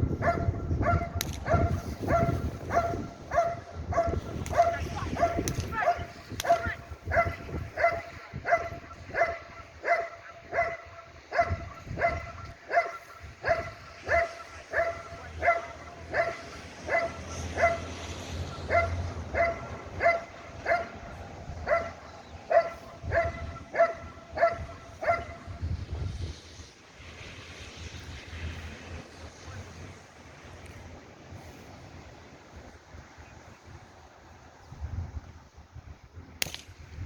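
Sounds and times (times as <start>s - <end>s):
dog barking: 0.2s - 17.9s, 18.7s - 25.5s.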